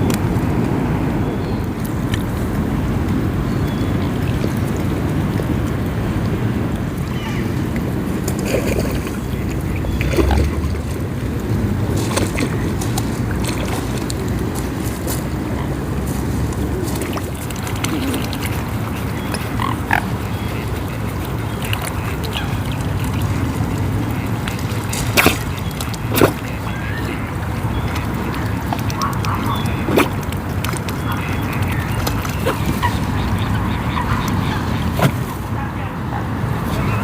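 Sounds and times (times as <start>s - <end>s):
low background rumble: 0.0s - 37.0s
waterfowl quacking and honking: 17.0s - 30.2s, 30.9s - 35.9s.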